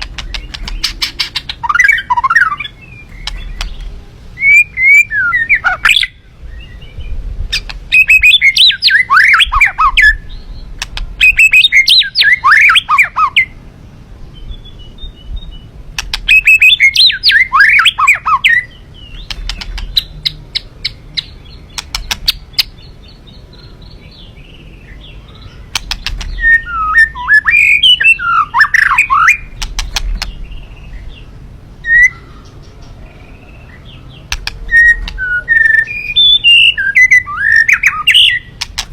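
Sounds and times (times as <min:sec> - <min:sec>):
songbird warbling chirps: 0:00.0 - 0:13.6, 0:14.2 - 0:38.9
sharp clicks: 0:03.1 - 0:04.0, 0:10.8 - 0:11.1, 0:15.9 - 0:16.3, 0:21.2 - 0:22.5, 0:25.7 - 0:26.4, 0:29.6 - 0:30.4, 0:34.3 - 0:35.2, 0:38.6 - 0:38.9.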